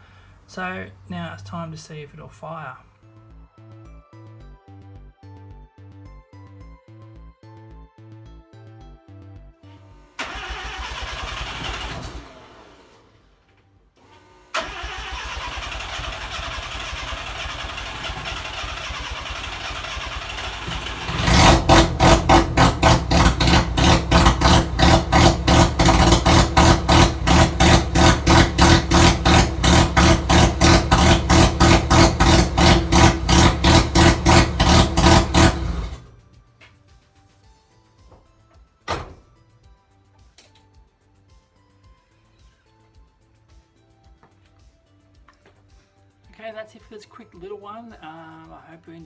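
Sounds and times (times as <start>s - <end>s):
rotary engine running: 14.6s - 36.1s.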